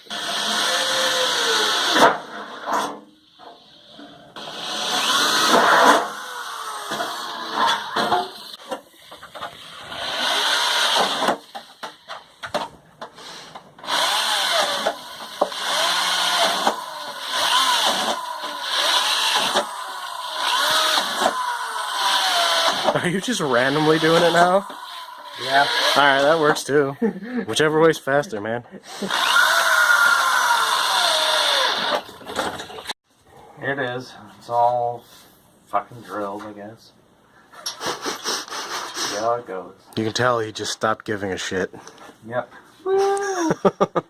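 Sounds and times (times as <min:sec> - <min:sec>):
power drill boring through metal: 0:00.0 - 0:08.6, 0:09.6 - 0:11.9, 0:13.2 - 0:26.8, 0:28.9 - 0:32.9.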